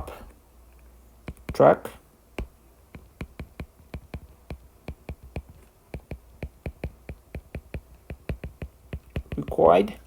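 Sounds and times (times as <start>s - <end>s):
keyboard typing: 3.0s - 9.6s.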